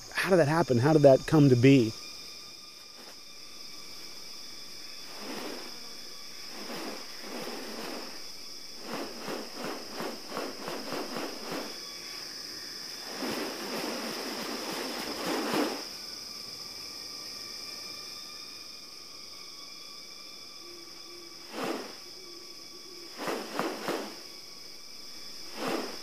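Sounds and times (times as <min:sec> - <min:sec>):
high insect drone: 0:00.0 - 0:26.0.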